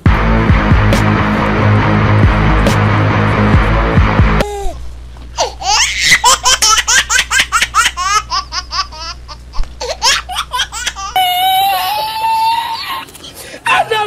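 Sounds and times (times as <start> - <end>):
high-pitched laughing: 5.4 - 13.1
high wail: 11.1 - 13.0.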